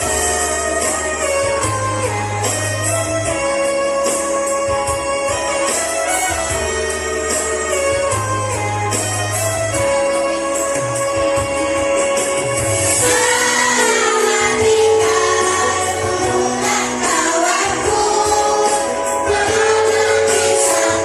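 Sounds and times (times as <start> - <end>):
instrumental accompaniment: 0.0 - 21.0
children's choir singing: 13.0 - 21.0.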